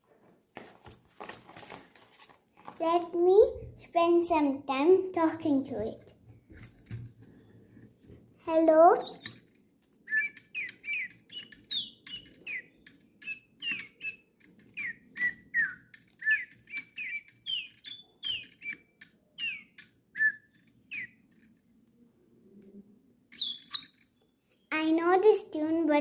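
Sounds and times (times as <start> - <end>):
toy bird electronic tweets: 8.8 - 21.5, 23.3 - 24.2.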